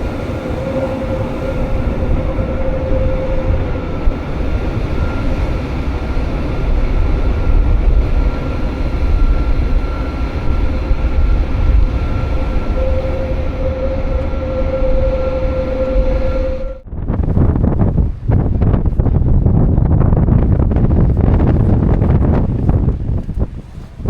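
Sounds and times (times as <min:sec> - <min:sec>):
electric motor whine: 0:00.0 - 0:16.8
train rumbling: 0:00.0 - 0:24.0.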